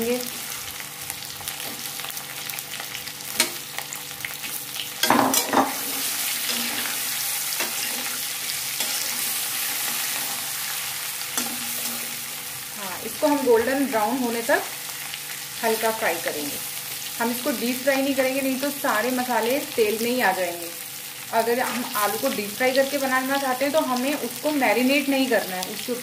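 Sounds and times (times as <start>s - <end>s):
potatoes sizzling in oil: 0.0s - 26.0s
metal spatula scraping pan: 5.0s - 10.7s.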